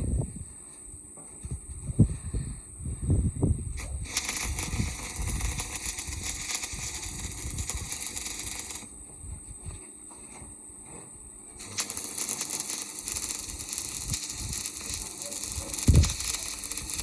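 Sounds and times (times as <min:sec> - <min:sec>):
welding arc crackling: 0:03.8 - 0:09.0, 0:11.6 - 0:17.0.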